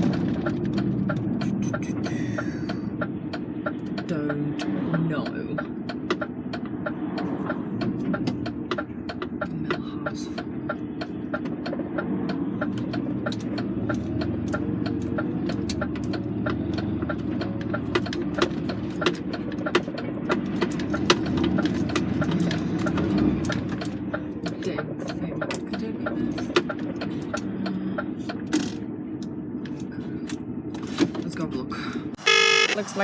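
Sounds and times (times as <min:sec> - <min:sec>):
lorry engine running: 0:00.0 - 0:33.0
short irregular clicks and rattles: 0:10.7 - 0:28.8.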